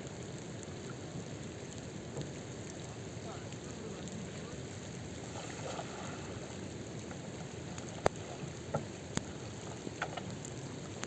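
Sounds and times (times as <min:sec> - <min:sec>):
river water rushing: 0:00.5 - 0:11.0.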